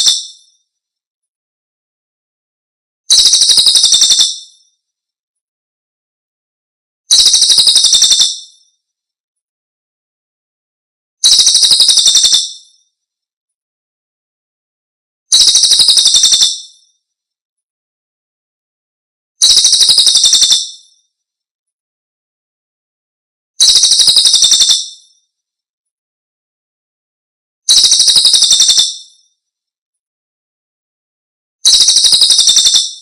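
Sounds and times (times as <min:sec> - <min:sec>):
high-pitched pulsing bird trill: 0:03.1 - 0:04.5, 0:07.1 - 0:08.5, 0:11.2 - 0:12.7, 0:15.3 - 0:16.8, 0:19.4 - 0:20.8, 0:23.6 - 0:25.0, 0:27.7 - 0:29.2, 0:31.7 - 0:33.0.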